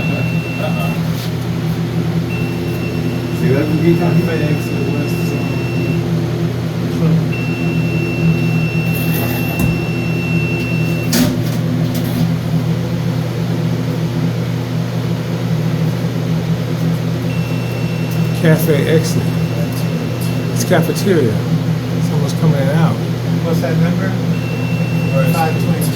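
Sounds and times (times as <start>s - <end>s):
long high-pitched beep: 0.0s - 1.1s, 2.3s - 6.2s, 7.0s - 11.2s, 17.3s - 21.7s, 24.3s - 25.9s
low mechanical hum: 0.0s - 25.9s.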